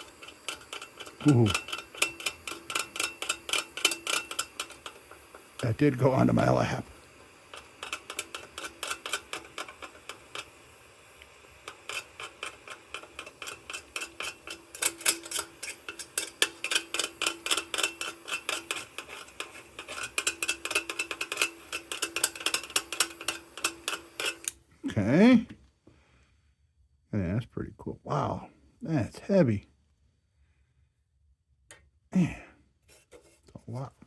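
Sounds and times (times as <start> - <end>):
metal tool tapping on tin: 0.0 - 5.6, 11.7 - 24.5.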